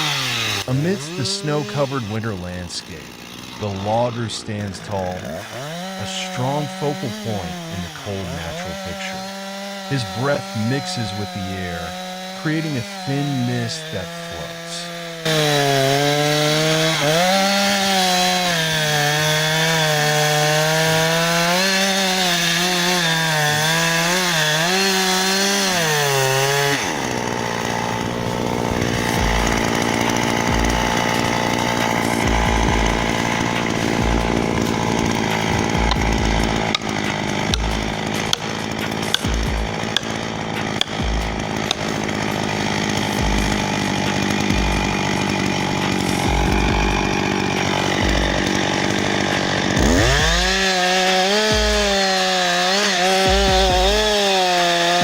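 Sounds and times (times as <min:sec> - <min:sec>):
chainsaw engine running hard: 0:00.0 - 0:55.0
knocks and cracks: 0:26.4 - 0:50.7.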